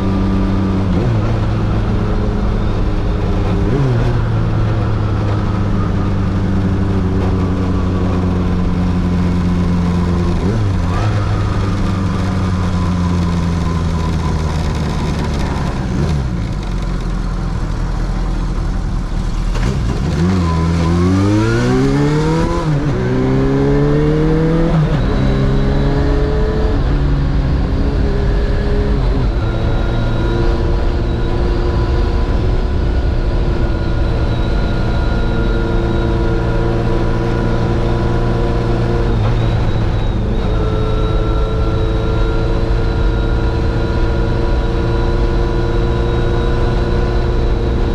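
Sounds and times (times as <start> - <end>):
motorcycle engine and exhaust: 0.0 - 47.9.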